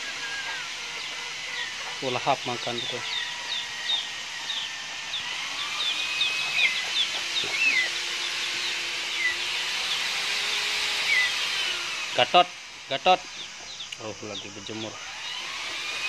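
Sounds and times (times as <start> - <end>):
outdoor background hiss: 0.0 - 16.0
small birds chirping: 0.0 - 16.0
whistled bird notes: 2.8 - 10.0, 11.0 - 11.4.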